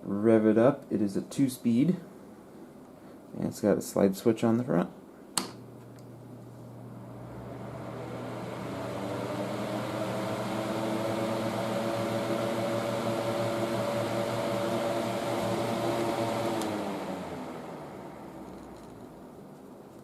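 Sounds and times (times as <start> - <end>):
box fan spinning: 5.5 - 20.0.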